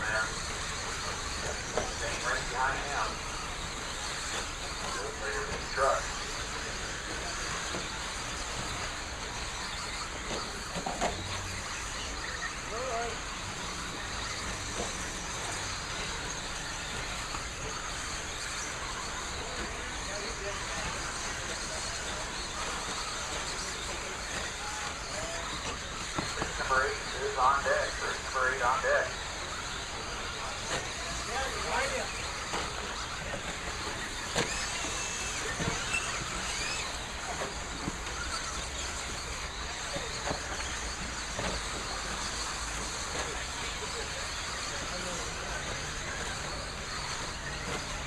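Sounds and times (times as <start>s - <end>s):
electric toy trucks racing: 0.0s - 48.0s.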